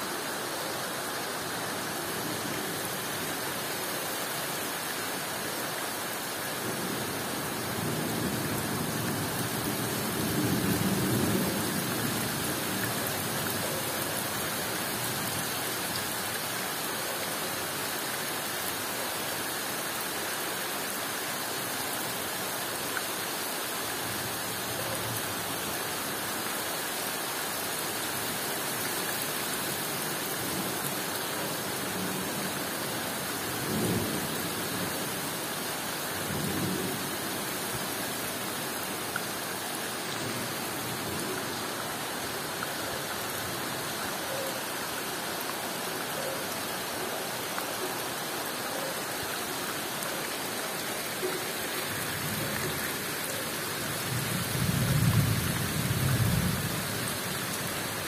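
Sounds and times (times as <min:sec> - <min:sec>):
heavy rain pouring on foliage: 0:00.0 - 0:58.0.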